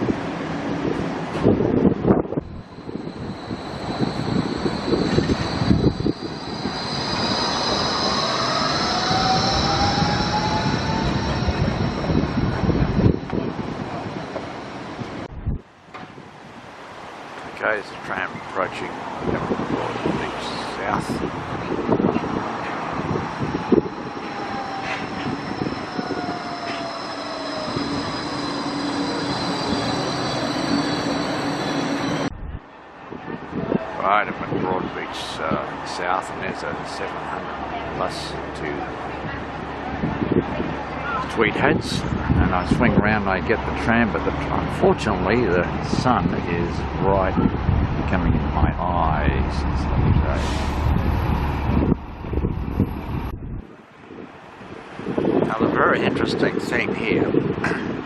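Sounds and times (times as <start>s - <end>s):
wind buffeting microphone: 0.0s - 16.9s, 18.2s - 58.0s
tram electric drive whining: 0.0s - 17.5s, 18.9s - 34.0s, 35.1s - 55.4s
higher steady whines: 0.9s - 15.8s, 22.9s - 32.6s.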